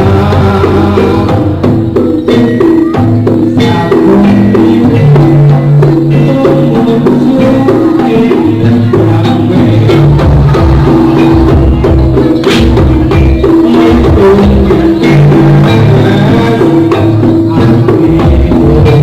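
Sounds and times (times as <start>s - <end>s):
gamelan music: 0.0s - 19.0s.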